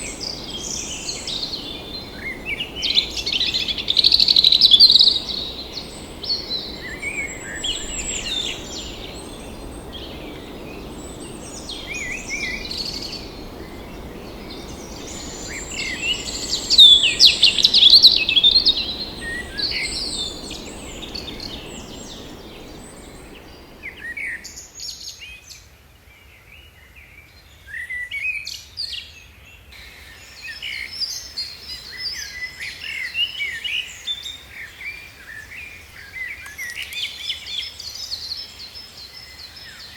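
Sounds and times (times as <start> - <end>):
low background noise: 0.0 - 24.9
forest birds singing: 0.0 - 25.4, 29.4 - 39.9.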